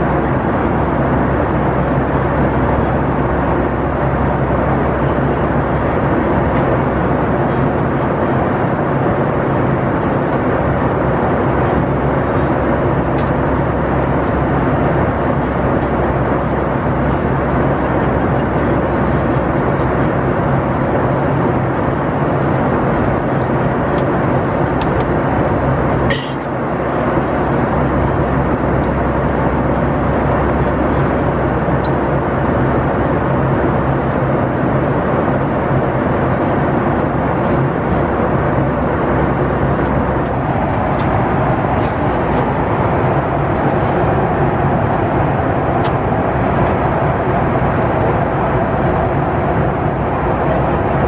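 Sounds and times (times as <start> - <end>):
airliner cabin engine rush: 0.0 - 51.0
low hum: 38.8 - 51.0.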